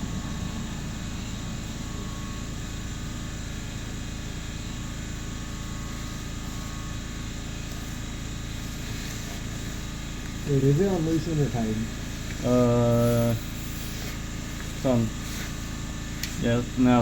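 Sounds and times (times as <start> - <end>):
low hum: 0.0 - 17.0
even hiss: 7.6 - 17.0.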